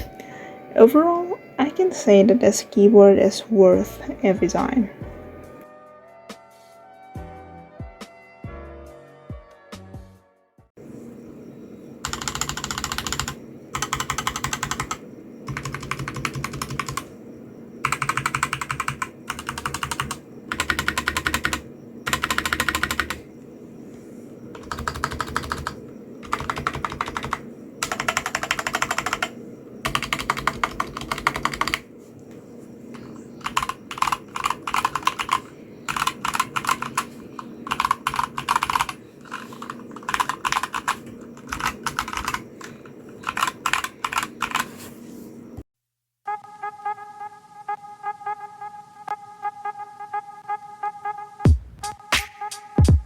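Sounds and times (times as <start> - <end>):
mechanical keyboard typing: 12.0 - 17.1, 17.8 - 23.2, 24.5 - 31.9, 33.4 - 44.8.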